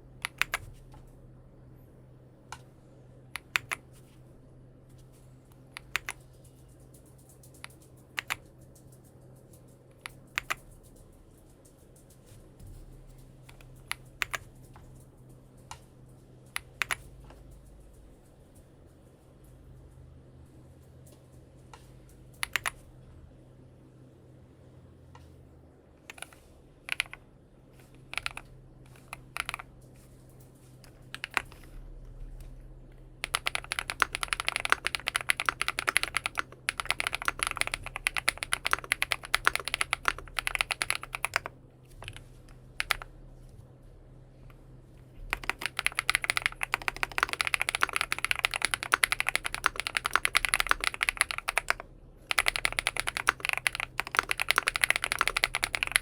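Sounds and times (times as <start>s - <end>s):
mechanical keyboard typing: 0.2s - 0.8s, 3.4s - 3.9s, 5.7s - 9.0s, 9.9s - 11.0s, 13.4s - 15.1s, 16.5s - 17.7s, 22.4s - 22.8s, 26.1s - 27.2s, 27.8s - 29.7s, 30.9s - 31.8s, 33.2s - 43.1s, 45.2s - 56.0s.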